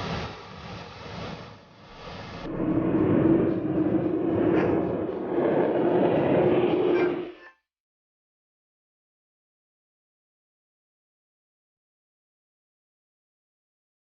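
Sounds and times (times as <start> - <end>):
jet aircraft rushing: 0.0 - 7.4
steady hum: 0.0 - 7.4.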